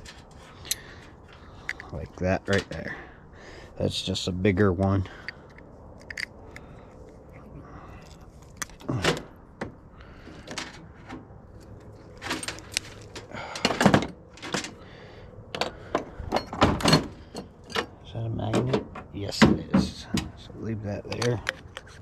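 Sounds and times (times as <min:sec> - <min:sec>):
metal parts clinking and knocking: 0:00.0 - 0:02.9, 0:05.2 - 0:07.2, 0:11.6 - 0:14.8, 0:15.6 - 0:19.0.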